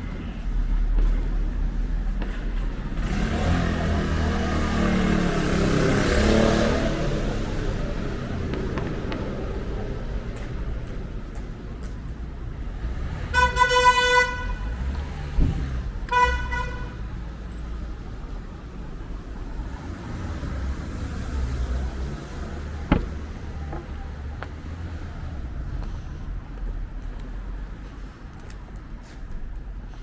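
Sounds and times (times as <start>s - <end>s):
road traffic rumble: 0.0s - 30.0s
vehicle horn tooting: 13.4s - 14.7s, 16.1s - 16.9s.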